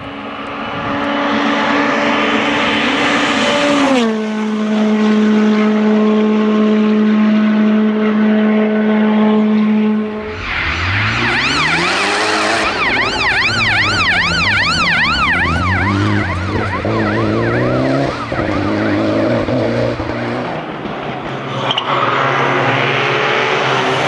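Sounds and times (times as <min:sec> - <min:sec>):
car accelerating and changing gear: 0:08.0 - 0:24.0
siren yelping: 0:10.1 - 0:20.7.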